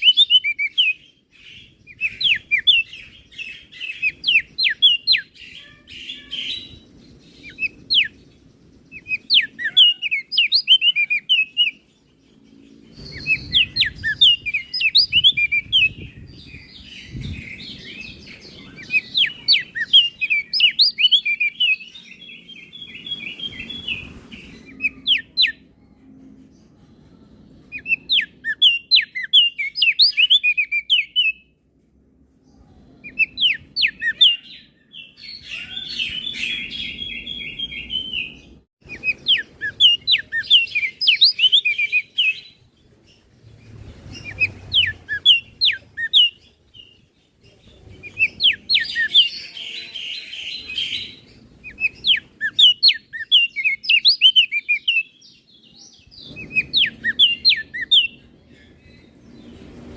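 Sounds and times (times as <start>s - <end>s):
bird singing high trills: 0.0s - 26.4s, 27.0s - 31.5s, 32.8s - 42.6s, 48.0s - 59.9s.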